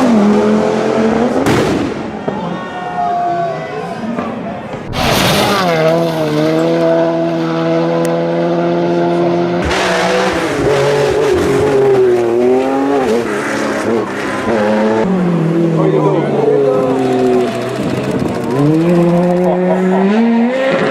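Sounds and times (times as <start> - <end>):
rally car engine revving: 0.0 - 1.5, 4.9 - 20.9
rushing noise: 4.9 - 6.7.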